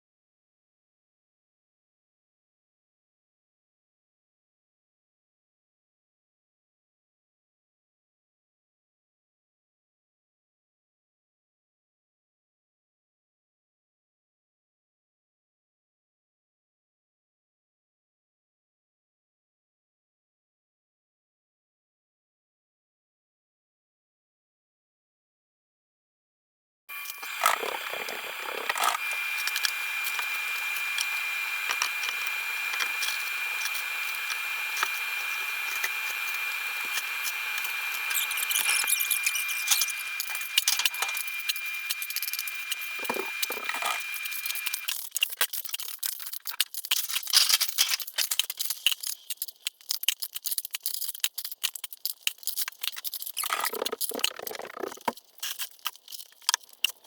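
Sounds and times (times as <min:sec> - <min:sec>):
insulation tearing and crinkling: 0:43.0 - 0:57.0.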